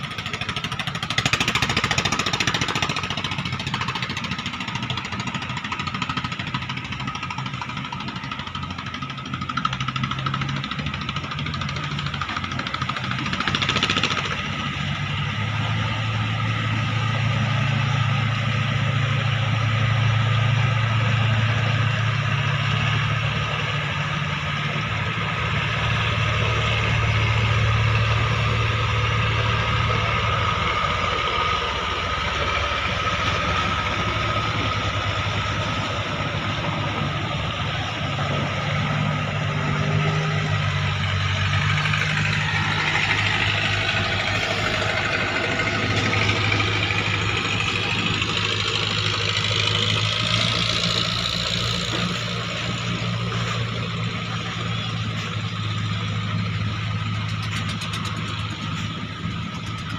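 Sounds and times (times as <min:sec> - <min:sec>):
boat diesel engine droning: 0:00.0 - 0:59.9
higher engine note rising: 0:15.0 - 0:59.9.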